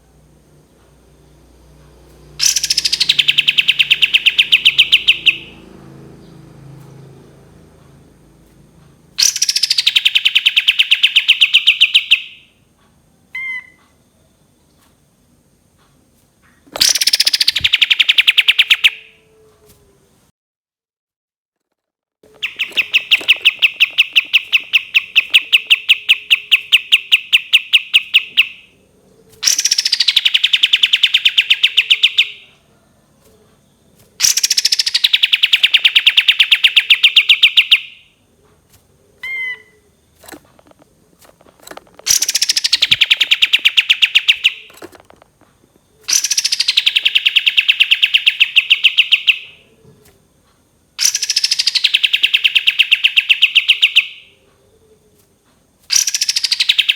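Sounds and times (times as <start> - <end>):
songbird long trilled song: 2.3 - 6.8, 9.2 - 12.6, 16.8 - 19.2, 22.3 - 28.8, 29.4 - 32.6, 33.6 - 38.2, 39.2 - 49.7, 51.0 - 54.4, 55.9 - 56.9
short bird chirps: 22.4 - 28.6, 41.6 - 44.8.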